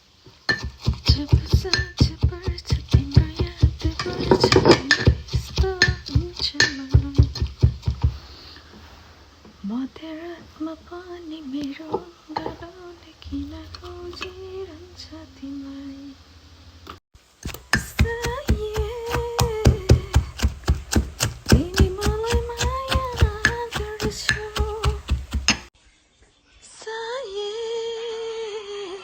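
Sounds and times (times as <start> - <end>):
woman singing: 1.0 - 7.5, 9.6 - 16.2, 17.8 - 25.2, 26.7 - 29.0
sharp evenly spaced taps: 17.4 - 25.7.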